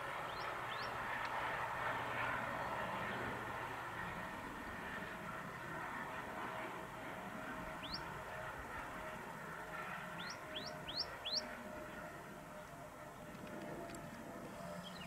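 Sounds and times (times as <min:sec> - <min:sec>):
faint steady hum: 0:00.0 - 0:15.0
small bird chirping: 0:10.2 - 0:11.5.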